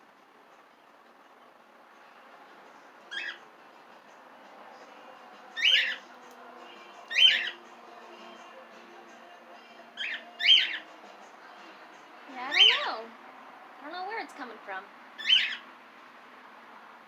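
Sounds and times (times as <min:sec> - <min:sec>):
cockatiels calling: 0:03.1 - 0:03.4, 0:05.6 - 0:06.0, 0:07.1 - 0:07.6, 0:10.0 - 0:10.9, 0:12.4 - 0:13.0, 0:15.2 - 0:15.6.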